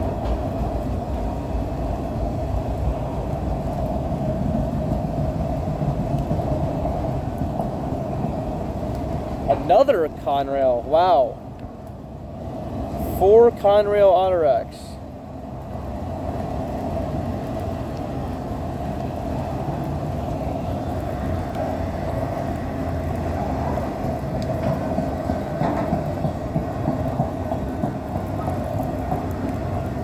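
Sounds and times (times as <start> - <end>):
steel wheels rumbling on rail: 0.0 - 30.0.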